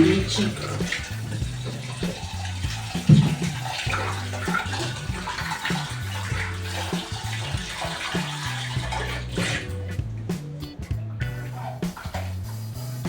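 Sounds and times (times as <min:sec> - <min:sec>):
water splashing and running: 0:00.0 - 0:10.4
knock: 0:03.1 - 0:03.6.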